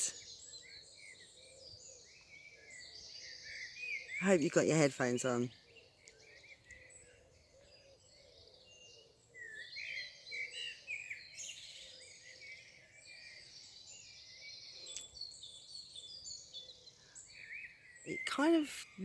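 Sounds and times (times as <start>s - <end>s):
songbirds singing: 0.0s - 19.0s
faint click: 14.9s - 15.2s.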